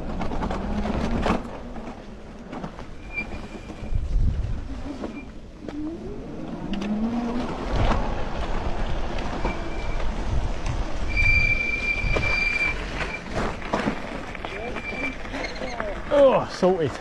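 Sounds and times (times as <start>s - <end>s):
bicycle tyre and road noise: 0.0s - 17.0s
high steady squeal: 2.9s - 4.1s, 9.2s - 10.3s, 11.0s - 13.3s, 14.5s - 15.8s
wind rumbling on microphone: 2.9s - 16.1s.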